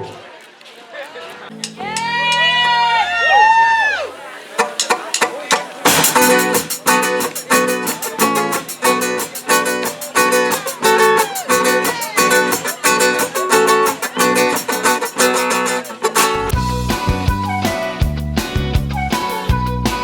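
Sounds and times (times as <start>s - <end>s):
guitar strumming chords: 4.6s - 18.0s.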